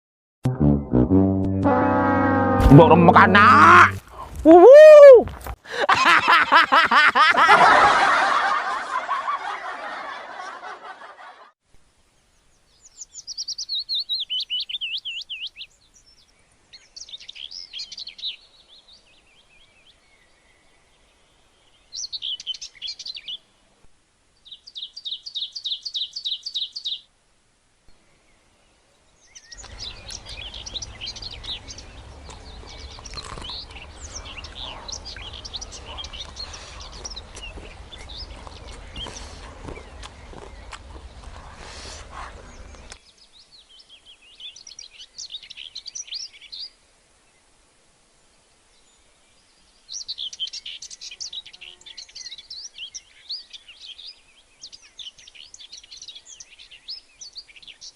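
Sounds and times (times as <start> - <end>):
loud rushing sound: 0.5 - 4.0
birds calling: 2.7 - 4.3, 29.2 - 46.8
chorus of bird chirps: 12.5 - 23.5, 24.4 - 27.1, 29.2 - 46.8, 48.8 - 57.9.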